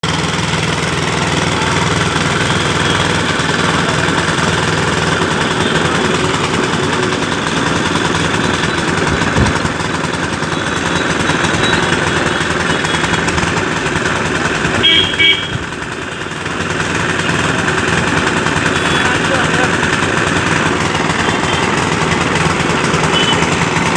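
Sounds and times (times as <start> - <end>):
small petrol engine running: 0.0 - 23.9.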